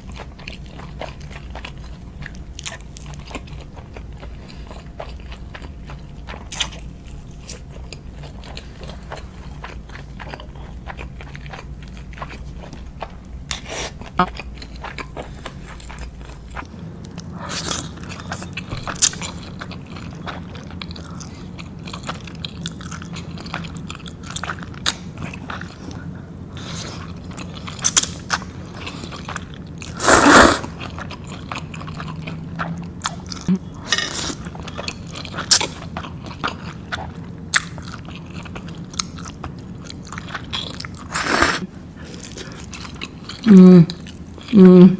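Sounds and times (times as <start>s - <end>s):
person biting and chewing: 29.8s - 30.9s.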